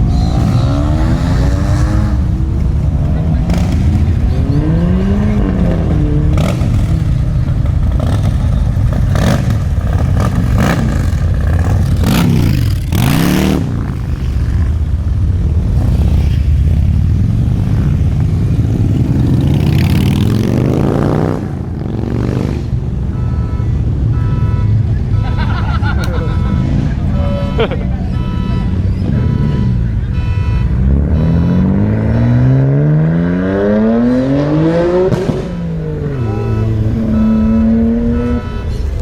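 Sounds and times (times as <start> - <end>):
car engine revving: 0.0 - 14.8, 28.3 - 39.0.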